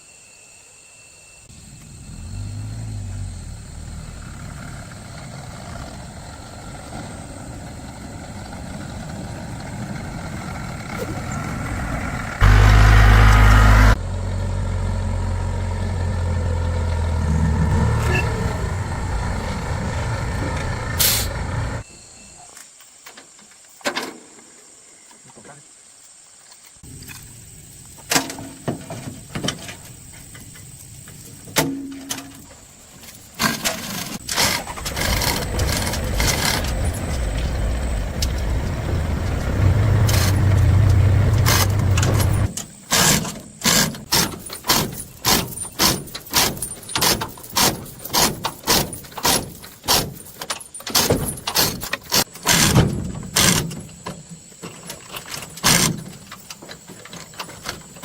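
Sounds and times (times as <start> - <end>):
machine running: 17.2 - 21.8, 34.3 - 42.5
sharp clicks and knocks: 39.4 - 58.0.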